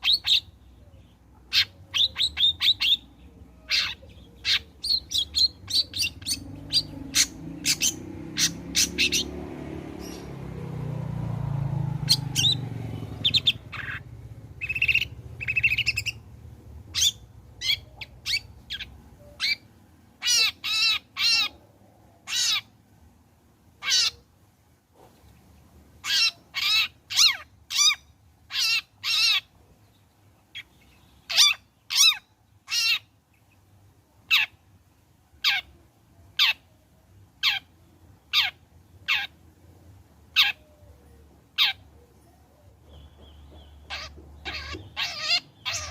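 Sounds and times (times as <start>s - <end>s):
shrike harsh calls: 1.5s - 10.4s, 43.6s - 45.9s.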